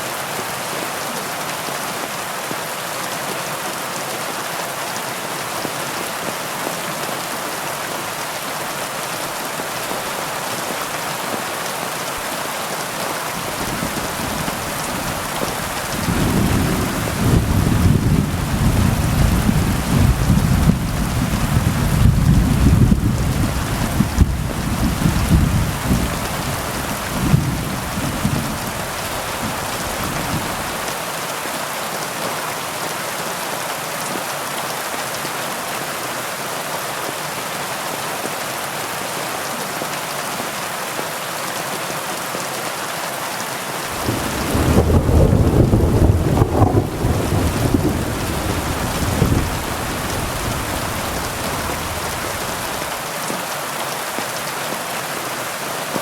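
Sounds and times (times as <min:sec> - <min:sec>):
heavy rain: 0:00.0 - 0:56.0
thunder rumbling: 0:13.4 - 0:30.9, 0:43.9 - 0:52.9.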